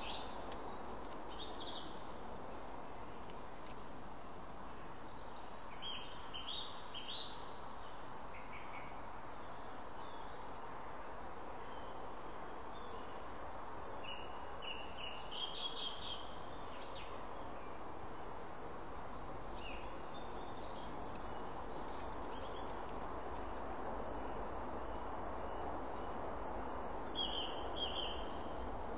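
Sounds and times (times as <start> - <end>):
songbirds chirping and singing: 0.0 - 3.2, 14.1 - 17.6, 27.1 - 28.6
steady background hiss: 0.0 - 28.9.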